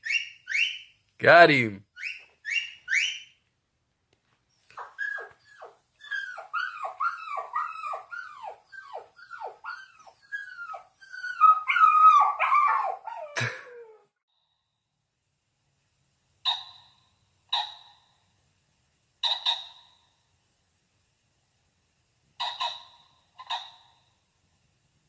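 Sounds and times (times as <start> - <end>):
puppy whimpering and yelping: 2.0 - 3.2, 4.5 - 14.1.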